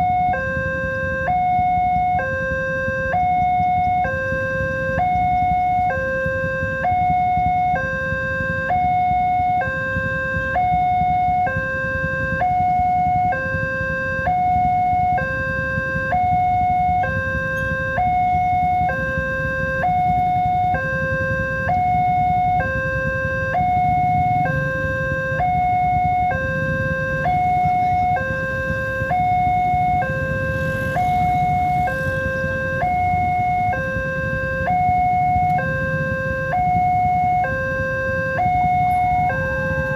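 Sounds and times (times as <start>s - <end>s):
two-tone warning alarm: 0.0s - 39.9s
low rumble: 26.8s - 35.2s.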